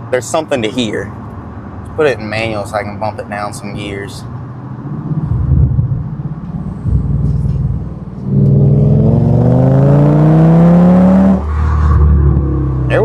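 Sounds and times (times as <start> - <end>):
car engine accelerating: 4.6 - 13.0.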